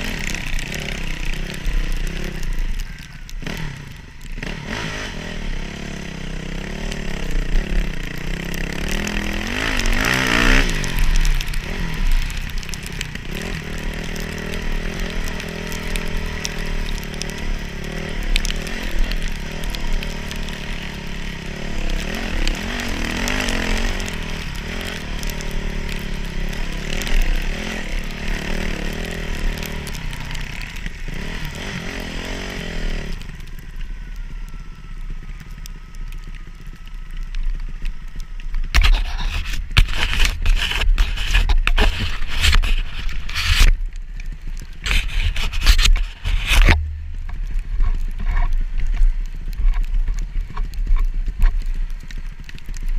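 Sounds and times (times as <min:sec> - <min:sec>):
dirt bike engine revving: 0:00.0 - 0:02.7, 0:03.4 - 0:33.3.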